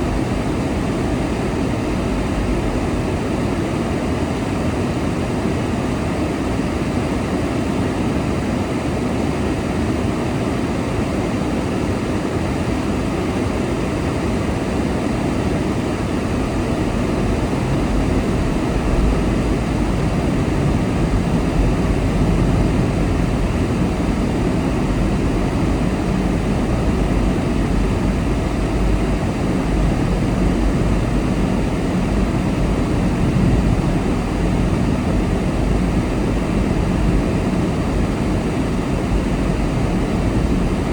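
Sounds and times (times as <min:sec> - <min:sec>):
wind rush: 0:14.2 - 0:40.9.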